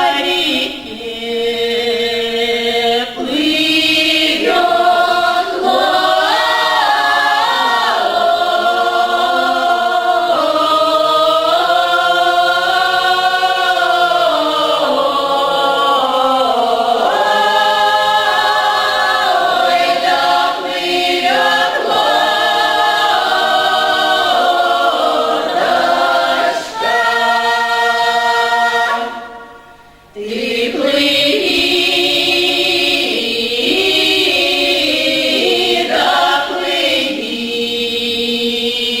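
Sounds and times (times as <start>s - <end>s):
group singing a cappella: 0.0s - 39.0s.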